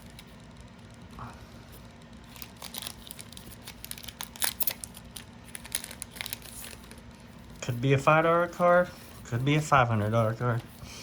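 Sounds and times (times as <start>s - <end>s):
plastic packaging crinkling: 0.0s - 1.1s, 1.8s - 8.0s.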